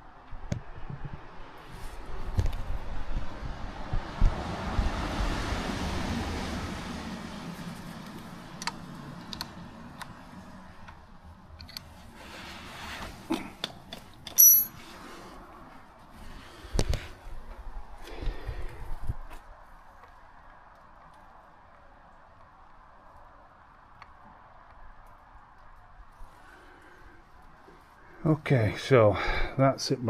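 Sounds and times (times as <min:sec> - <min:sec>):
small metallic clicks and clinks: 0:13.6 - 0:14.8.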